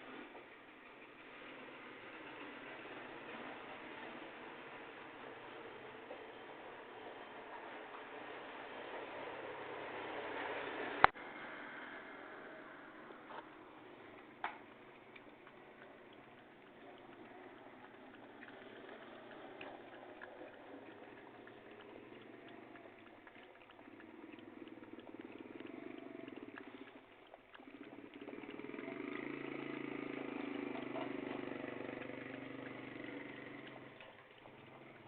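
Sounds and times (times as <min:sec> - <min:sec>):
dog lapping water: 0:13.4 - 0:35.0.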